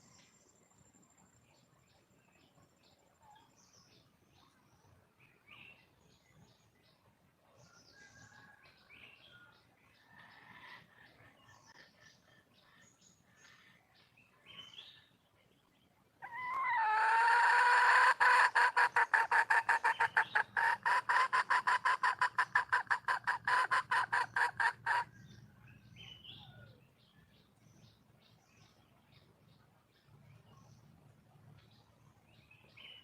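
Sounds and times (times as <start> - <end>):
faint small birds chirping: 0.0 - 17.3, 17.9 - 33.0
hen calling and clucking: 16.2 - 26.8.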